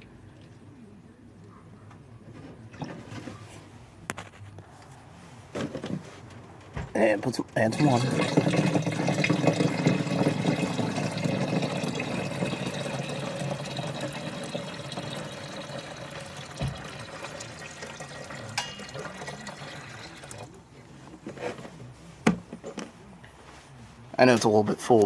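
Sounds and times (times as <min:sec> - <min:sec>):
water pouring into radiator: 0:07.6 - 0:20.6.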